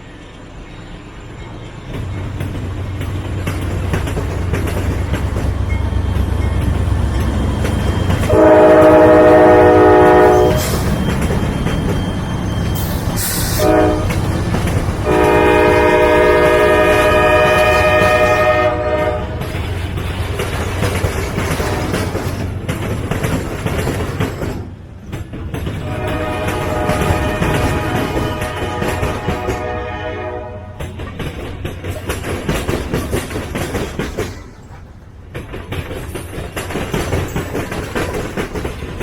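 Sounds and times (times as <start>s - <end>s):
passing train rumble: 0.0s - 39.0s
locomotive air horn blasts: 8.2s - 10.8s, 13.2s - 14.2s, 15.0s - 19.5s, 25.8s - 30.8s.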